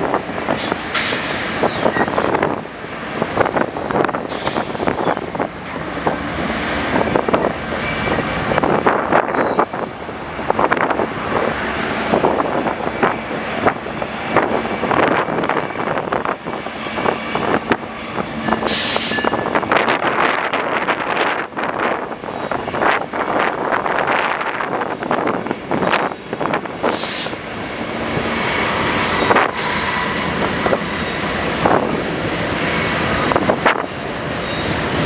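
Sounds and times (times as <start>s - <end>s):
freight train wheels clattering: 0.0s - 9.7s.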